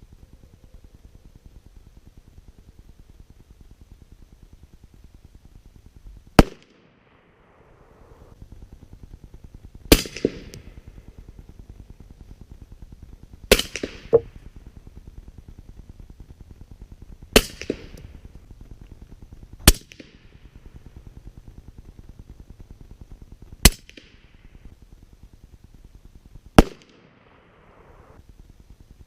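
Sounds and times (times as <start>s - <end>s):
rifle shots: 6.4s - 7.7s, 9.9s - 10.9s, 13.5s - 14.4s, 17.3s - 18.0s, 19.6s - 20.2s, 26.6s - 28.0s.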